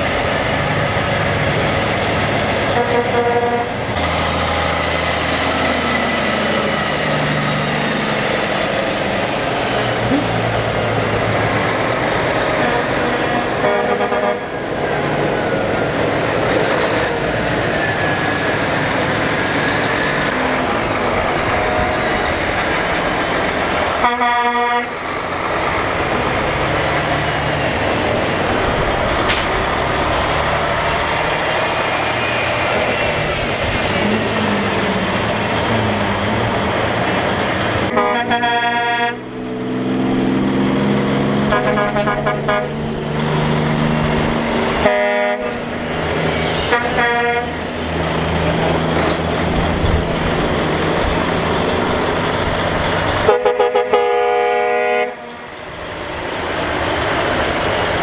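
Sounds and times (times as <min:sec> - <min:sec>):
truck engines passing: 0:00.0 - 0:58.0
truck air horn blasts: 0:02.6 - 0:04.0, 0:11.5 - 0:18.4, 0:20.4 - 0:23.1, 0:24.0 - 0:25.1, 0:37.9 - 0:39.3, 0:41.4 - 0:42.9, 0:44.4 - 0:45.8, 0:46.6 - 0:47.6, 0:53.2 - 0:55.5.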